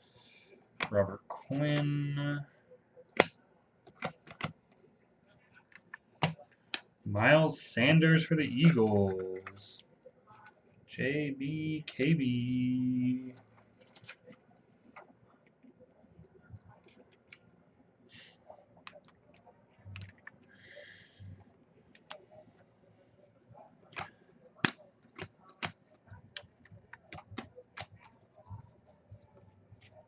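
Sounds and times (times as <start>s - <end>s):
cards clicking and tapping: 3.2s - 4.8s, 5.7s - 6.9s, 23.9s - 28.7s
cards rustling: 8.4s - 9.8s, 12.0s - 17.4s.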